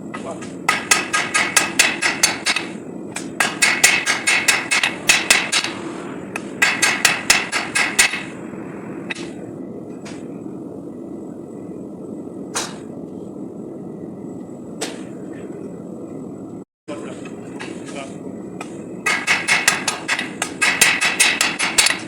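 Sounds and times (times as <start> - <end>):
hammer striking steel on anvil: 0.7 - 5.8, 6.6 - 8.3, 19.0 - 22.0.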